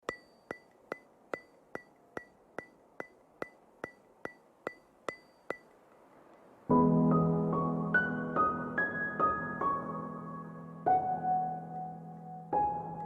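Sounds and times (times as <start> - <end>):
sharp ringing ticks: 0.0 - 6.5.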